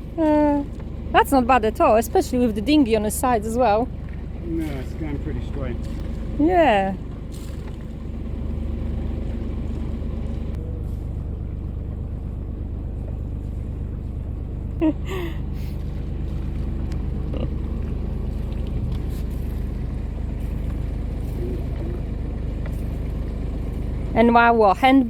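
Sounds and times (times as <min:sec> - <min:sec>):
diesel engine humming: 0:00.0 - 0:25.0
person's voice: 0:00.2 - 0:03.8, 0:24.2 - 0:25.0.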